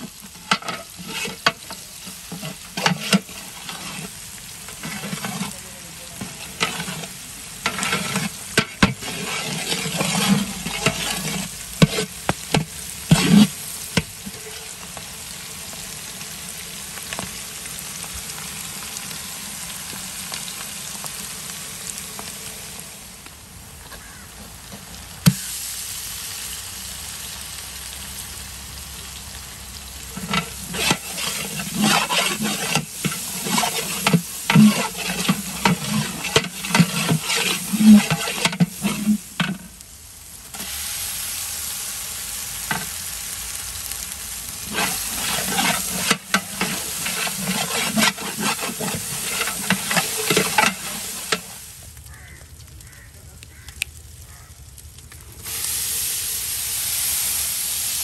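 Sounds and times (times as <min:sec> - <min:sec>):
metal ladle scraping a pot: 0:00.0 - 0:14.8, 0:30.1 - 0:39.7, 0:44.6 - 0:51.6
hot oil sizzling: 0:00.0 - 0:58.0.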